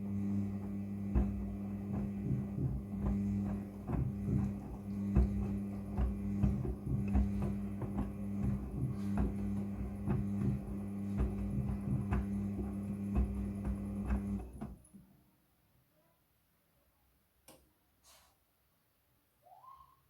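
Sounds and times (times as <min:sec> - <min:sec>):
washing machine motor hum: 0:00.0 - 0:14.9
laundry tumbling soft knocks: 0:00.5 - 0:14.8.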